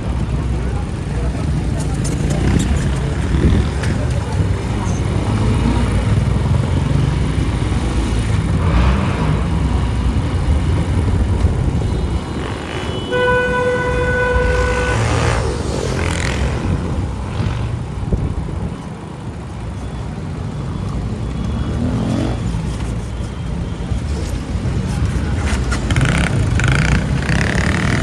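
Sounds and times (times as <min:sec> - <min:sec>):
motorbike engine: 0:00.0 - 0:18.0, 0:24.0 - 0:28.0
vehicle horn: 0:12.0 - 0:15.5.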